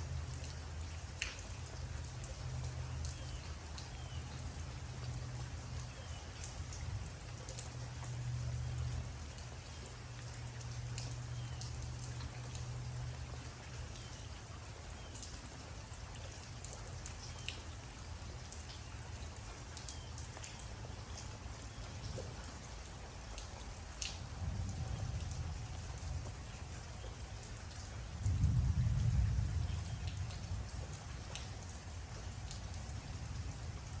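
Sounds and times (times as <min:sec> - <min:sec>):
raindrops ticking on a surface: 0:00.0 - 0:34.0
steady rain: 0:00.0 - 0:34.0
low rumble: 0:28.2 - 0:30.7.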